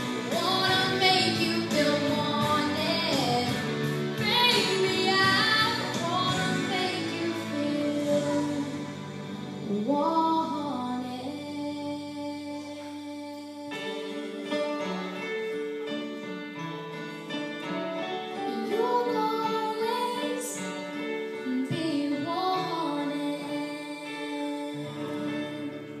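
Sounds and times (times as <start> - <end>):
instrumental accompaniment: 0.0 - 26.0.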